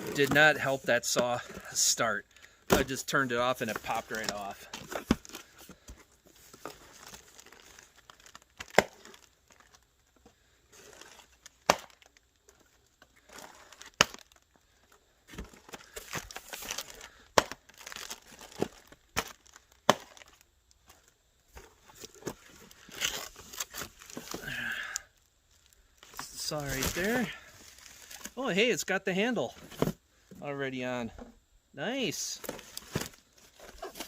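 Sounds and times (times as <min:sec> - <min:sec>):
paper and plastic rustling: 0:02.8 - 0:09.8, 0:15.3 - 0:24.5, 0:25.6 - 0:28.4, 0:32.4 - 0:34.0.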